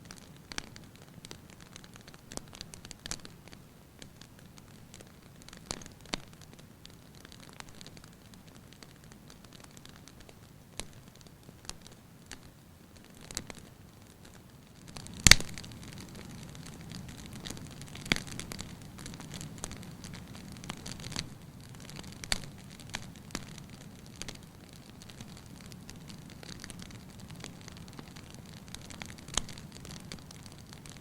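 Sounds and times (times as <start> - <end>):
wood fire crackling: 0.0 - 31.0
sharp fire pops: 14.2 - 31.0.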